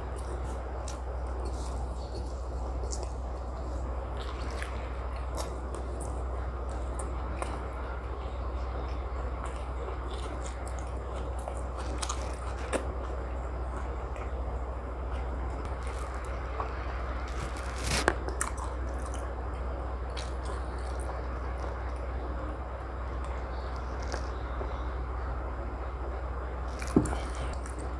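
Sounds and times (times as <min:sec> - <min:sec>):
person chewing food: 0:00.0 - 0:07.9, 0:08.9 - 0:14.4, 0:15.1 - 0:22.1, 0:23.3 - 0:24.6, 0:26.7 - 0:27.9
steady low hum: 0:00.0 - 0:27.9
small crunches and clicks: 0:15.6 - 0:19.3, 0:26.7 - 0:27.9.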